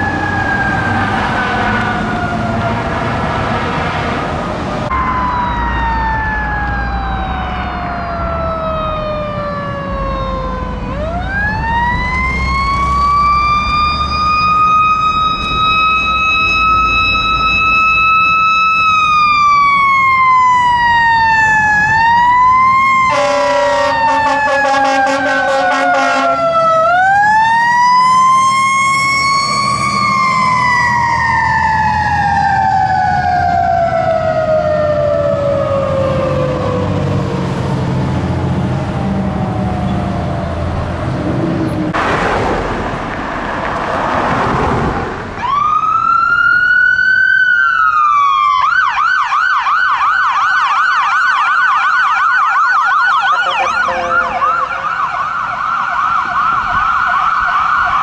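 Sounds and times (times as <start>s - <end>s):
fire engine siren winding: 0.0s - 3.2s, 4.9s - 37.1s
traffic noise: 0.0s - 49.5s
ambulance siren wailing and yelping: 0.0s - 58.0s
low engine rumble: 38.3s - 45.7s.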